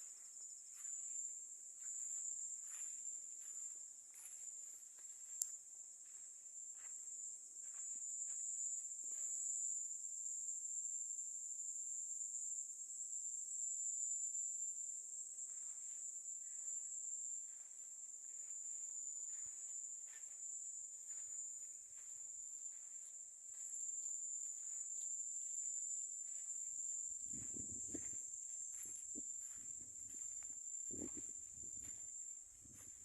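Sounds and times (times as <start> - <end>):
crickets trilling: 0.0 - 33.0
faint soft steps: 25.7 - 33.0.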